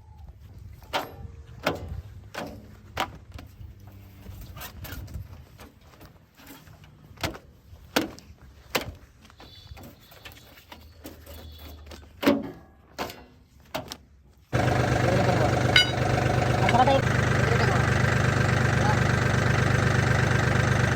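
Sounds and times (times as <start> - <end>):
faint low machine hum: 14.6 - 20.9
heavy diesel engine running: 14.6 - 20.9.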